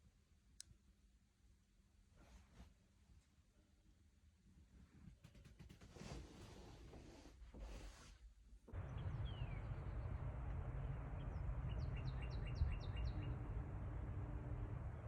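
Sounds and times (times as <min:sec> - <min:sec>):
low outdoor rumble: 0:08.7 - 0:15.0
bird singing falling notes: 0:08.8 - 0:14.7.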